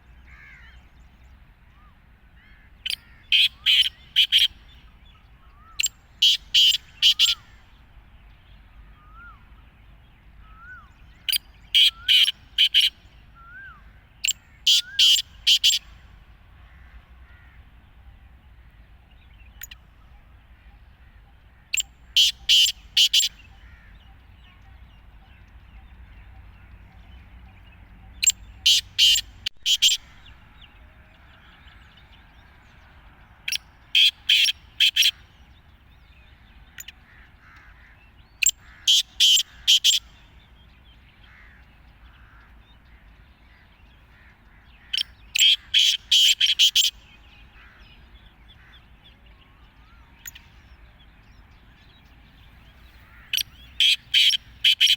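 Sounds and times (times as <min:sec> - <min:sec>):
francolin grating call: 0:02.9 - 0:04.6, 0:05.8 - 0:07.6, 0:11.3 - 0:13.0, 0:14.2 - 0:15.8, 0:21.8 - 0:23.9, 0:28.2 - 0:30.3, 0:34.0 - 0:35.2, 0:38.4 - 0:40.1, 0:44.9 - 0:46.9, 0:52.7 - 0:54.9.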